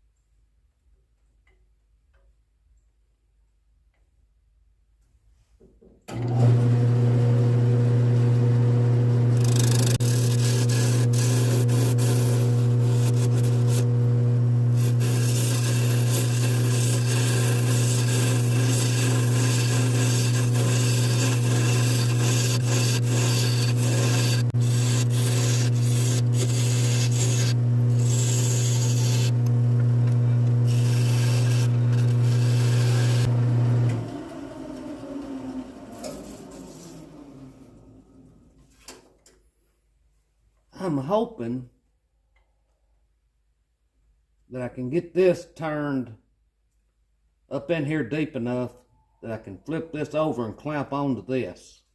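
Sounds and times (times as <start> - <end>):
lathe motor humming: 6.3 - 37.5
turning tool scraping wood: 9.2 - 33.4.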